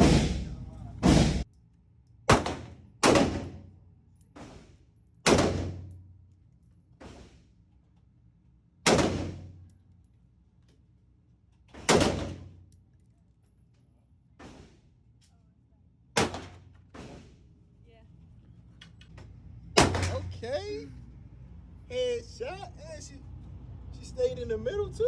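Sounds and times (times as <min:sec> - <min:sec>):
faint bangs: 0:00.0 - 0:01.5, 0:18.9 - 0:20.5
gunshots echoing indoors: 0:00.0 - 0:01.5, 0:02.3 - 0:06.3, 0:08.8 - 0:09.9, 0:11.8 - 0:12.7, 0:16.2 - 0:17.3, 0:19.8 - 0:20.4.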